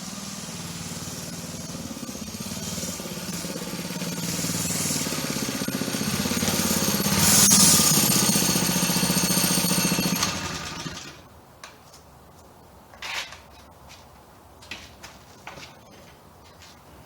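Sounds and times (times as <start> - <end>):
minibike engine rattling: 0.0 - 11.2.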